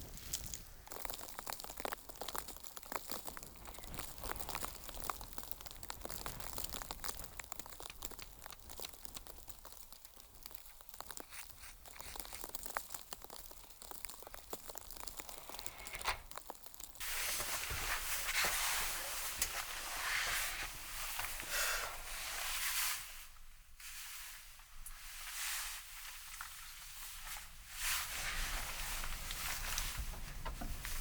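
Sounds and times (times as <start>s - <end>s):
small crunches and crinkles: 0.0s - 31.0s
steady hiss: 16.9s - 31.0s.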